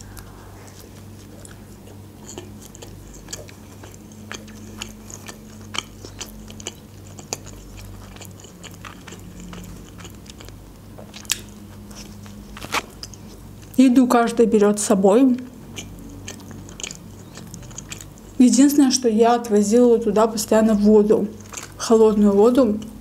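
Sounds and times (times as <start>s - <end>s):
person biting and chewing croissant: 0.0s - 13.7s, 15.7s - 18.4s, 21.4s - 21.8s
steady low hum: 0.0s - 23.0s.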